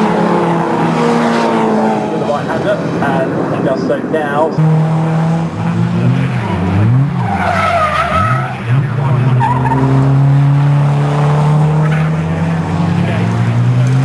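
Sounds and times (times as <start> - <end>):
racing car engines revving: 0.0 - 14.0
tyre squeal: 6.2 - 10.2.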